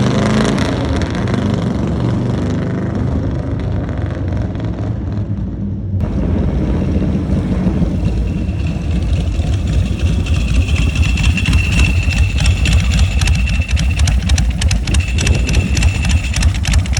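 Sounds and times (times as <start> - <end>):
faint high whine: 6.0 - 16.9
motorcycle engine idling: 6.0 - 16.9.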